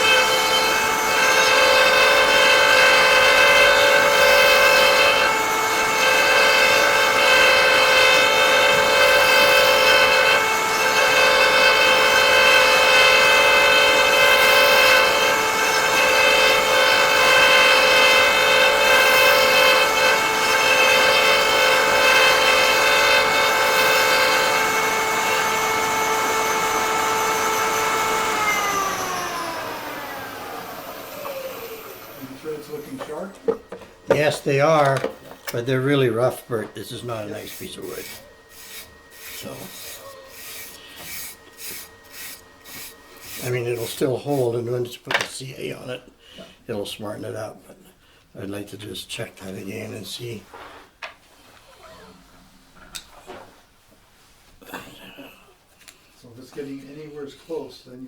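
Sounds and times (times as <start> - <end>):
cutter motor whining: 0.0 - 44.4
cutter cutting wood: 0.0 - 44.6.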